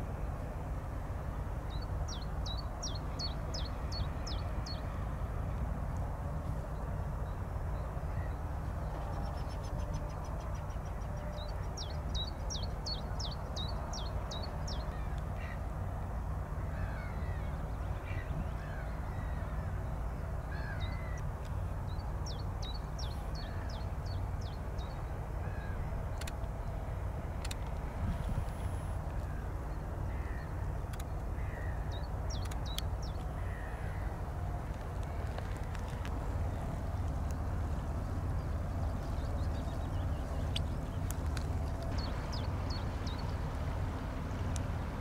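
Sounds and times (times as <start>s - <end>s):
steady low rumble: 0.0s - 45.0s
sharp clicks: 26.2s - 26.6s, 27.4s - 27.9s, 30.9s - 31.3s, 32.3s - 33.4s.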